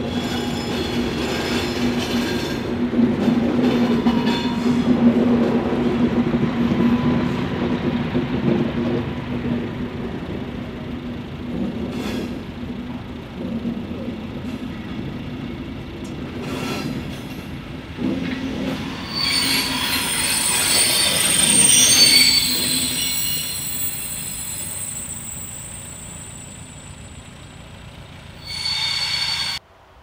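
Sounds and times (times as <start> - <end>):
train coaches rolling past: 0.0 - 30.0
high wheel squeal: 18.4 - 29.6.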